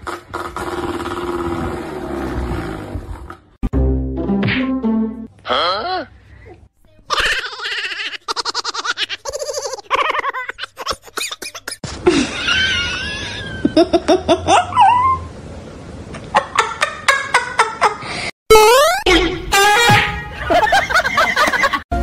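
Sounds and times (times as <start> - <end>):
person laughing: 9.2 - 14.9.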